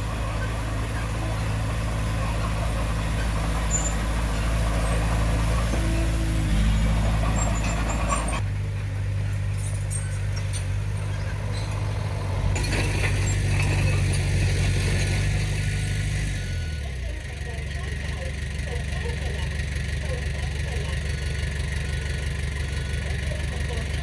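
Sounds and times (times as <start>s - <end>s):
heavy machinery engine droning: 0.0s - 24.0s
faint high squeaks: 0.3s - 8.4s.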